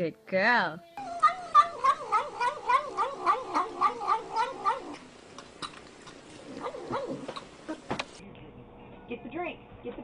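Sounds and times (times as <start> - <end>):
cat yowling: 1.0 - 5.0.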